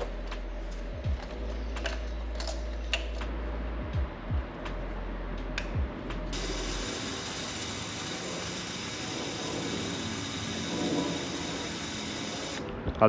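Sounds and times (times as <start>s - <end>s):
ratchet wrench clicking: 6.3s - 12.6s
steady hiss: 6.4s - 12.6s.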